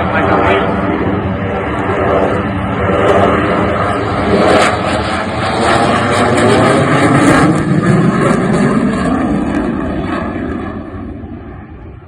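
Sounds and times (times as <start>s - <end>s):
jet roar: 0.0s - 12.0s.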